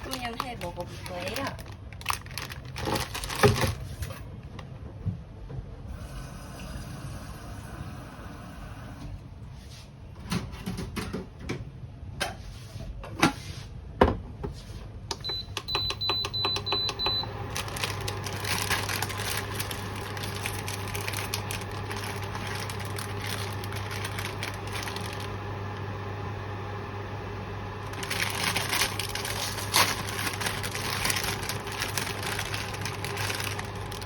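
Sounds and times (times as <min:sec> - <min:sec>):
crackly rustling: 0:00.0 - 0:04.3, 0:17.3 - 0:25.9, 0:27.8 - 0:34.0
appliance low hum: 0:00.0 - 0:34.0
appliance clicks and knocks: 0:15.1 - 0:17.2.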